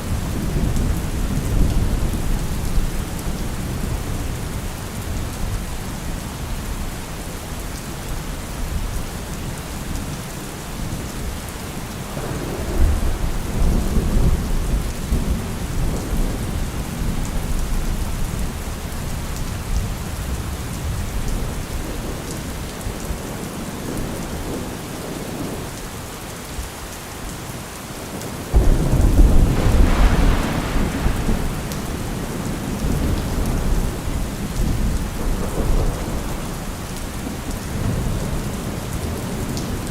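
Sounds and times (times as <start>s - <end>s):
steady rain: 0.0s - 39.9s
rolling thunder: 12.1s - 22.1s, 28.5s - 39.8s.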